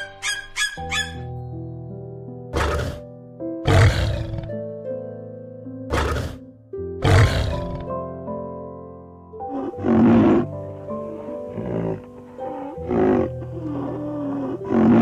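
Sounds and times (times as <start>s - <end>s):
background music with held notes: 0.0s - 15.0s
animal roaring: 2.6s - 3.0s, 3.6s - 4.5s, 5.9s - 6.4s, 7.0s - 7.9s, 9.5s - 15.0s.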